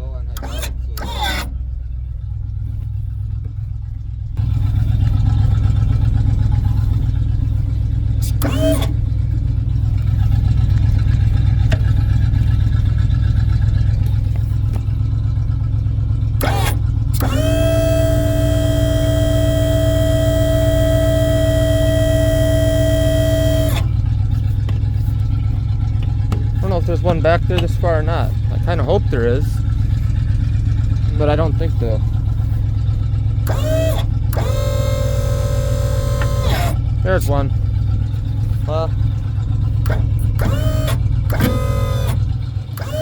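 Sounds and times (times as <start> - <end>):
hydraulic pump whine: 0.0 - 43.0
truck engine running: 0.0 - 43.0
short whines: 0.2 - 2.2, 6.5 - 9.2, 16.4 - 29.7, 33.4 - 37.6, 38.2 - 43.0.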